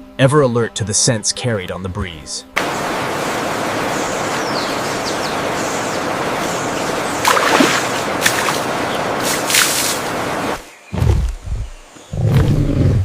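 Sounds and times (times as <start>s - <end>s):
birds chirping: 1.5s - 13.0s
water rushing: 2.6s - 10.7s.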